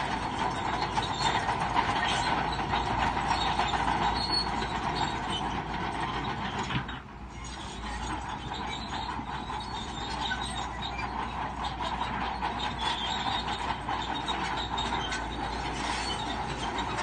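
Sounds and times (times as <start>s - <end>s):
bulldozer engine running: 0.0s - 17.0s
bulldozer tracks clanking and squealing: 0.0s - 17.0s.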